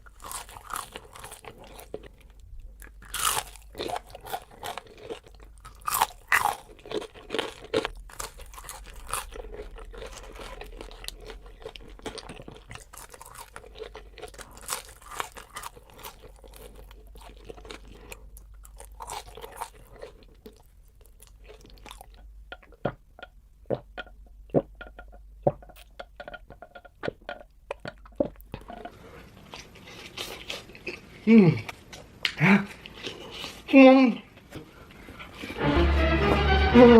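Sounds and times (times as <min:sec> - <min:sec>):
crunchy chewing: 0:00.0 - 0:22.3, 0:27.0 - 0:32.1, 0:32.7 - 0:33.7.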